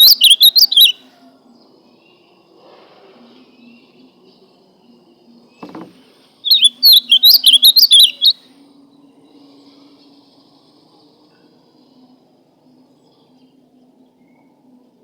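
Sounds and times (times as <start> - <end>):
bird singing warbled phrase: 0.0 - 1.0, 6.5 - 8.3
soft knock: 5.6 - 6.0.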